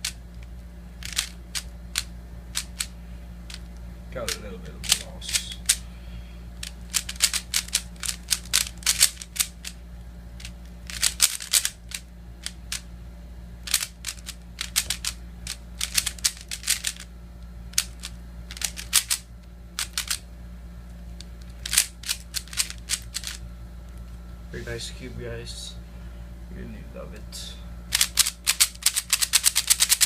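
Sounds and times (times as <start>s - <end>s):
puzzle cube plastic clicks: 0.0s - 2.9s, 3.5s - 5.8s, 6.6s - 9.8s, 10.4s - 12.8s, 13.6s - 17.1s, 17.7s - 19.2s, 19.8s - 20.2s, 21.2s - 23.4s, 27.9s - 30.0s.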